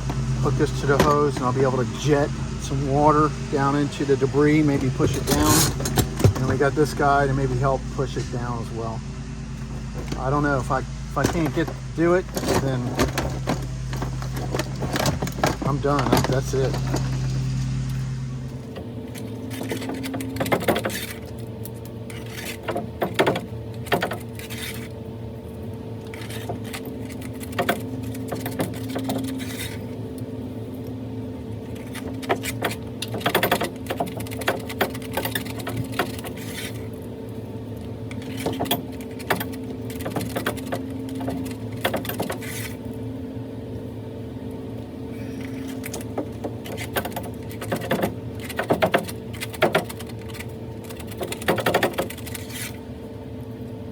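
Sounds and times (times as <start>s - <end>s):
metal tools clinking and scraping: 0.0s - 2.3s, 3.7s - 8.7s, 9.6s - 18.0s, 18.7s - 25.0s, 26.0s - 30.0s, 31.6s - 37.0s, 38.1s - 42.9s, 45.1s - 52.8s
steady low hum: 0.0s - 53.9s.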